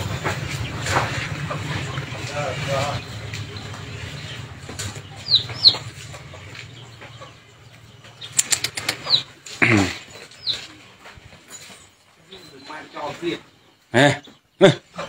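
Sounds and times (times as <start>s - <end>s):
small birds chirping: 0.0s - 15.0s
loud bird call: 8.2s - 10.8s.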